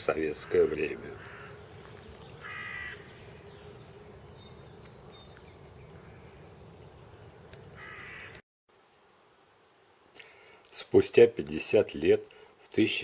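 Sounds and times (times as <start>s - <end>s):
small birds chirping: 0.0s - 8.4s
low outdoor background noise: 0.0s - 13.0s
crow cawing: 0.4s - 1.6s, 2.4s - 3.2s, 7.8s - 8.4s.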